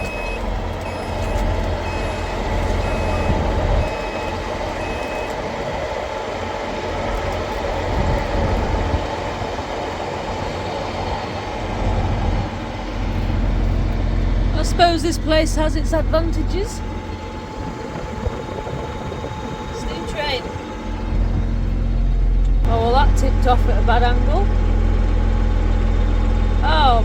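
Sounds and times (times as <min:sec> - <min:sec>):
electronic warning beeps: 0:00.0 - 0:05.4
tractor engine running: 0:00.0 - 0:27.0.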